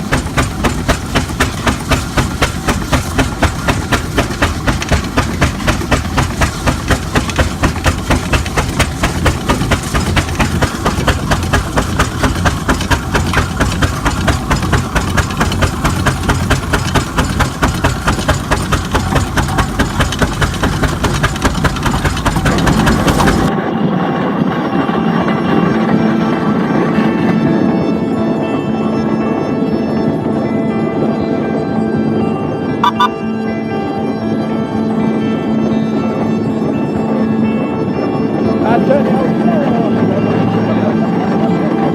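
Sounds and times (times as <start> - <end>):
steam engine exhaust chuffing: 0.0 - 23.5
music: 23.5 - 41.9.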